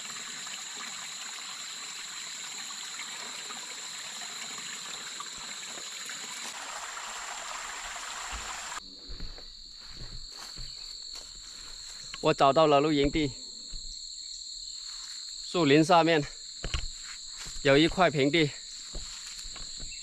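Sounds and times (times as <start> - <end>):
water trickling into basin: 0.0 - 8.8
high insect drone: 0.0 - 20.0.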